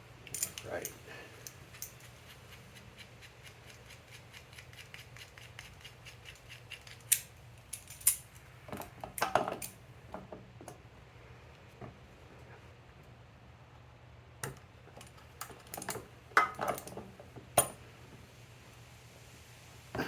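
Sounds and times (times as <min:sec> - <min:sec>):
metal clinks clattering: 0:00.2 - 0:02.0
hand tools clicking on metal: 0:00.2 - 0:08.4.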